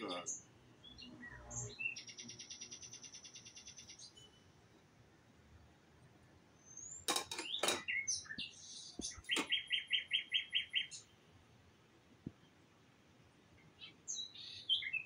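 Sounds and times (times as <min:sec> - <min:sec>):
small bird chirping: 0:00.0 - 0:04.5, 0:06.6 - 0:11.1, 0:13.6 - 0:15.0.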